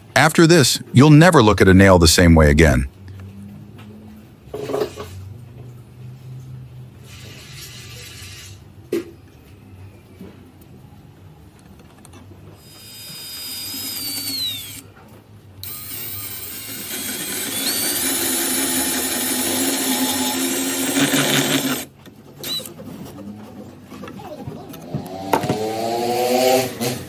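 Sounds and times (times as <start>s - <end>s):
power drill cutting wood: 12.6s - 14.8s, 15.6s - 22.7s.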